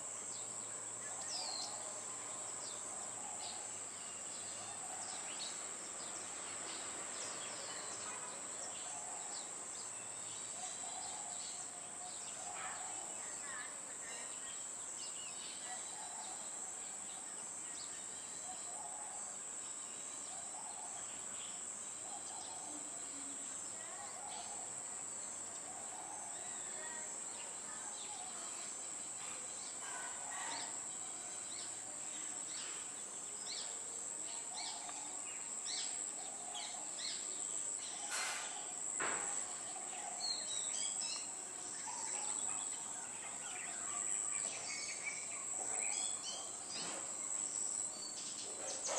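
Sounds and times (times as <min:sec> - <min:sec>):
insects droning: 0:00.0 - 0:48.9.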